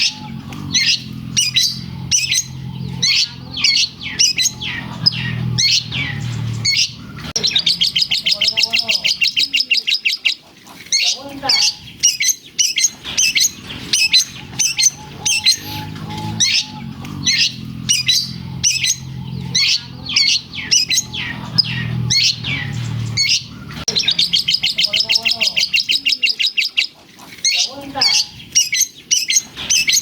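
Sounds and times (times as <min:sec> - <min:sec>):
low droning hum: 0:00.0 - 0:08.4, 0:12.9 - 0:24.8
shrike singing high chirps: 0:12.6 - 0:25.8.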